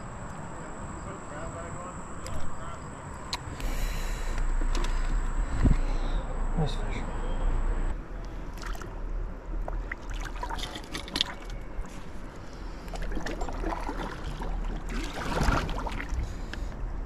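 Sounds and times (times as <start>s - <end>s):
wind rumble on microphone: 5.1s - 5.9s
water splashing around kayak: 9.6s - 16.6s.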